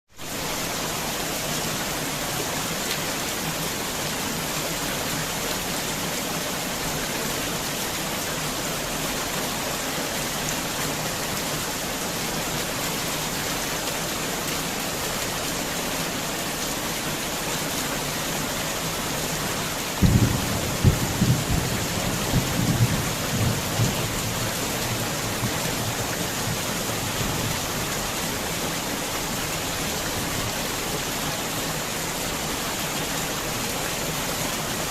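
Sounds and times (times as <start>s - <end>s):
heavy rain falling: 0.1s - 34.9s
thunder rumbling and cracking: 20.0s - 26.6s.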